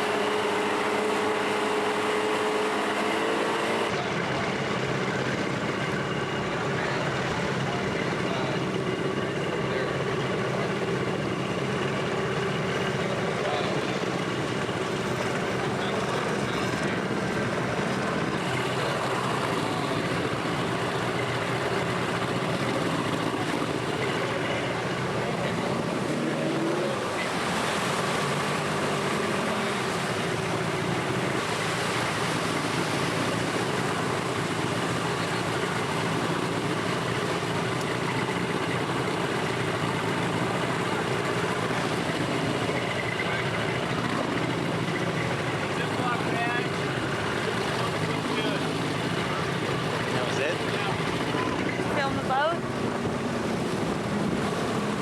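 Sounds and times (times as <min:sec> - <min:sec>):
outboard motor running: 0:00.0 - 0:55.0
rushing wind and water: 0:25.7 - 0:55.0.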